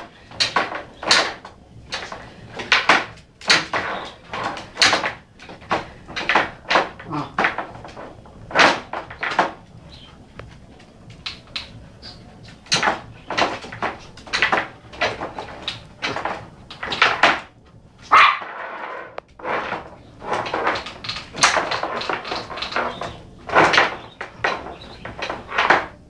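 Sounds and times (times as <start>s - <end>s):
dog barking: 18.1s - 18.5s.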